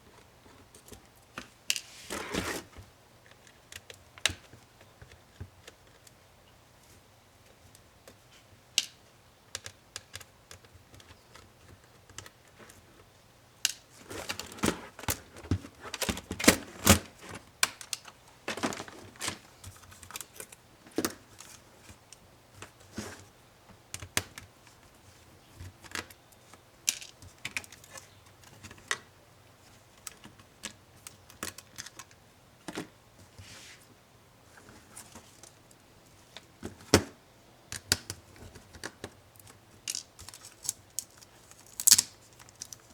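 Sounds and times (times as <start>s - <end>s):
small laptop parts clicking: 8.8s - 12.8s.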